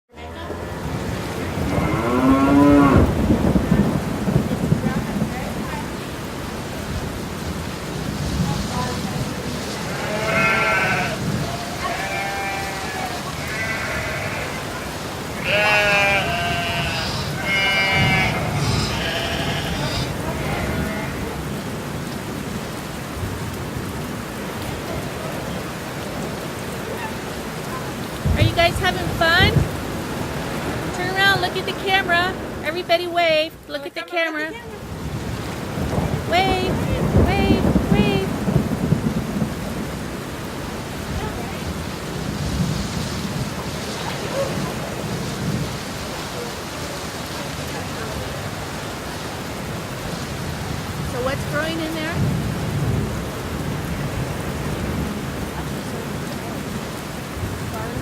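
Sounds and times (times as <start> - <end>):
wind rumble on microphone: 0.7 - 12.6, 28.2 - 32.6, 34.7 - 58.0
farm animal calling: 9.8 - 21.4.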